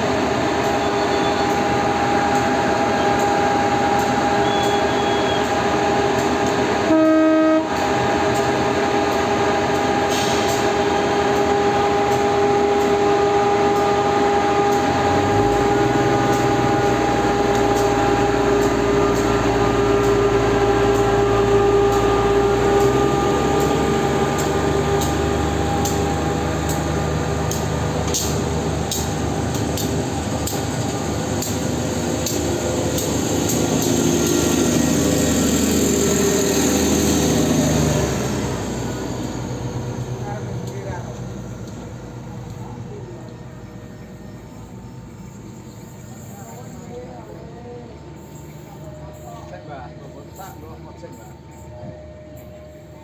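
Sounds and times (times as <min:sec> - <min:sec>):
train engine hum: 0:00.0 - 0:53.0
train horn blast: 0:06.8 - 0:08.4
deep low engine rumble: 0:14.2 - 0:52.4.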